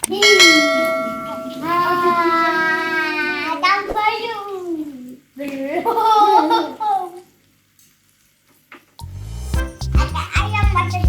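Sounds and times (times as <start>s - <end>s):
ringing metallic tone: 0.1s - 2.6s.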